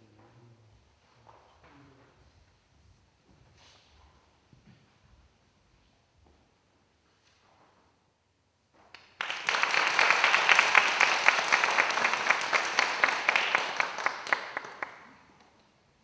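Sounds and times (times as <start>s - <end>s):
audience applauding: 9.0s - 15.4s.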